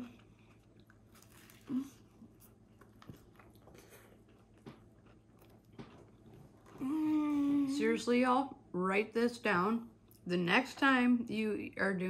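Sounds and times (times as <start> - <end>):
person crunching and chewing: 0.1 - 6.8
person humming: 6.8 - 7.7.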